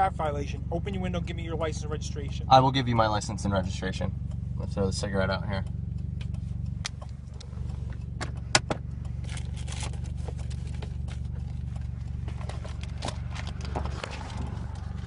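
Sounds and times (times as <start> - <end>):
car engine idling: 0.0 - 15.0
handling clicks and knocks: 6.9 - 15.0.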